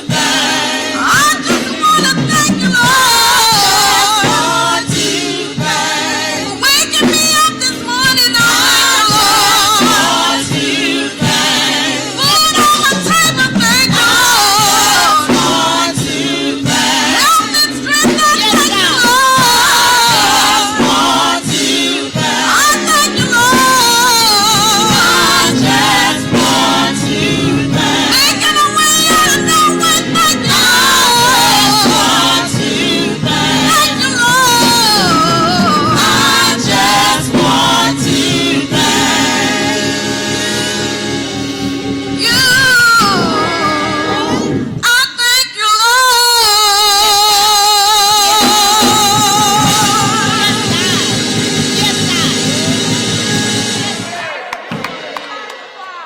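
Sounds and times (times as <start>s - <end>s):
instrumental accompaniment: 0.0s - 45.0s, 47.9s - 56.0s
gospel choir singing: 0.0s - 56.0s.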